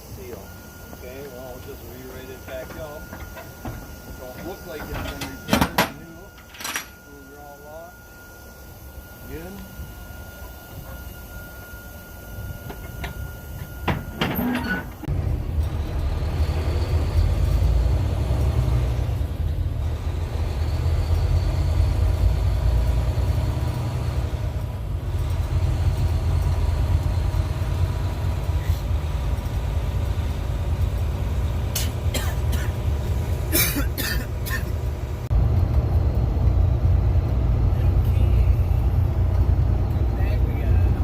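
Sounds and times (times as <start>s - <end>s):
faint steady high tone: 0.0s - 15.1s
truck diesel engine rumbling: 0.0s - 41.0s.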